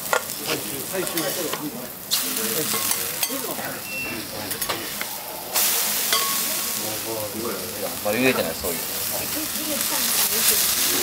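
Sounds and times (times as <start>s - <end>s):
food sizzling on griddle: 0.0s - 11.0s
metal spatulas tapping and scraping: 2.7s - 3.5s.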